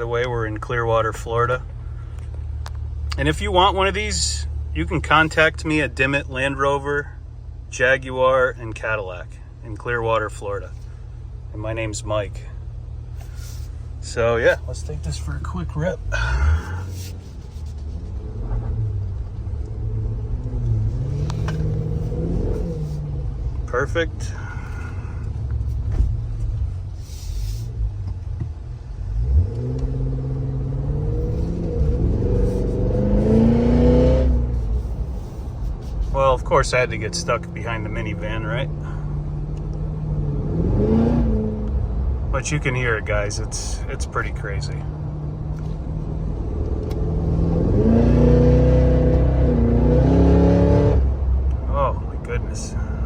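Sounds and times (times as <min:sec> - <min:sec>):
car engine revving: 0:12.0 - 0:52.9.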